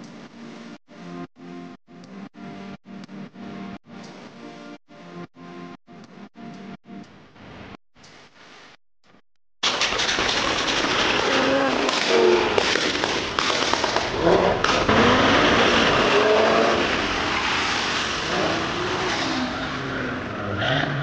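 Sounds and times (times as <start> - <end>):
sharp exhaust pops: 9.6 - 18.0
car engines revving: 11.5 - 21.0
loud rushing noise: 14.6 - 20.2.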